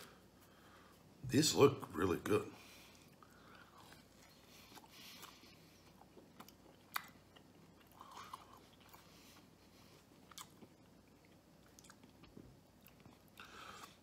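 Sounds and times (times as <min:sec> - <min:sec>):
wet chewing clicks and smacks: 0:02.9 - 0:14.0.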